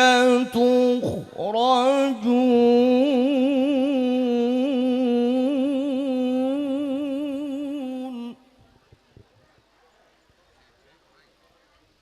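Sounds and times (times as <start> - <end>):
man reciting melodic long note: 0.0 - 8.5.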